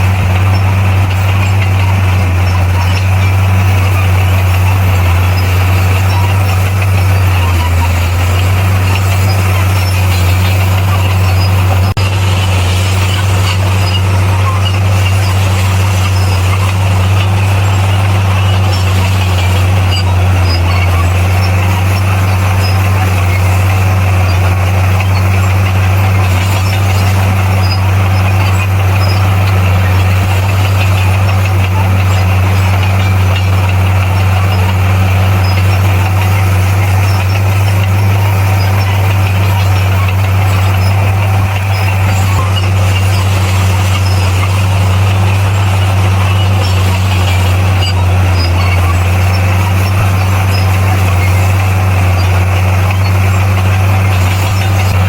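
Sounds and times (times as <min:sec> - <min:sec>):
bulldozer diesel engine droning: 0:00.0 - 0:55.0
high continuous whine: 0:00.0 - 0:55.0.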